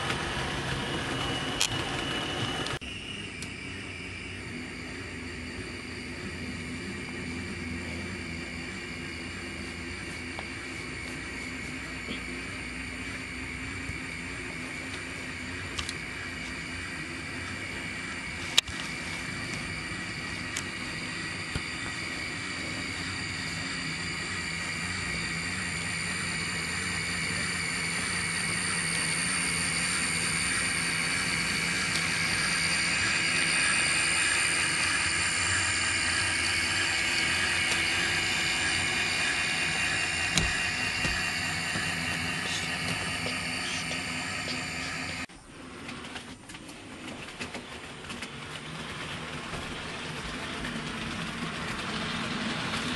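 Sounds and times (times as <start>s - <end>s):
model train motor whine: 0.0s - 52.9s
rolling wheel noise: 30.3s - 52.9s.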